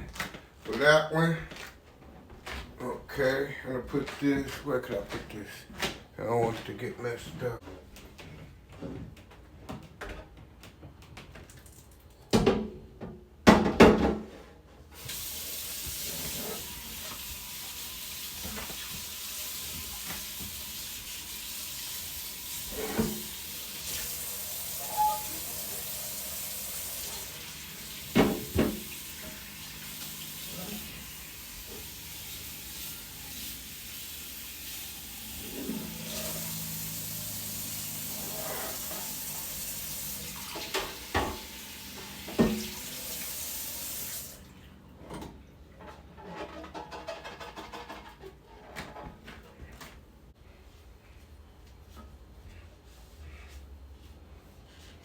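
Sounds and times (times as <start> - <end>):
tap water running into sink: 15.0 - 44.5.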